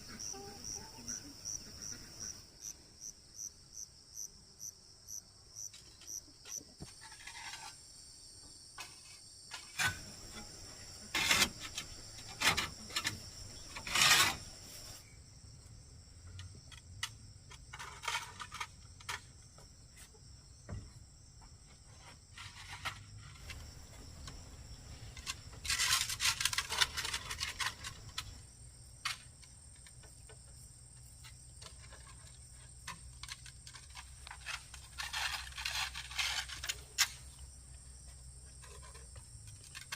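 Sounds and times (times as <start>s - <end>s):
insects chirring: 0.0s - 39.9s
scraping and rubbing noises: 5.7s - 7.9s, 8.8s - 15.1s, 16.7s - 20.2s, 21.6s - 39.9s.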